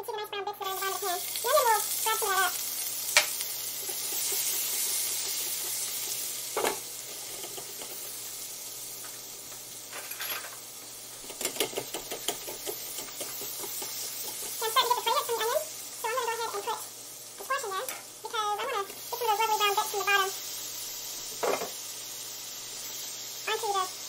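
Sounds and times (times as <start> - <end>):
onion sizzling in a pot: 0.0 - 24.0.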